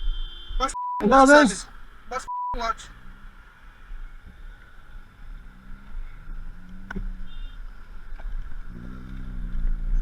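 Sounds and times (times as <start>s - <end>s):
motorcycle engine rumbling: 1.0s - 10.0s.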